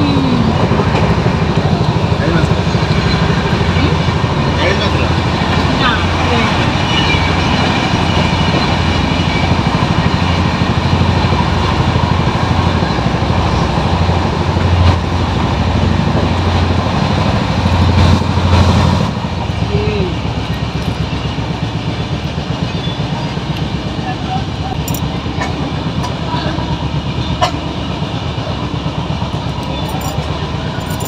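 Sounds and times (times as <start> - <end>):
train running noise inside coach: 0.0 - 31.0.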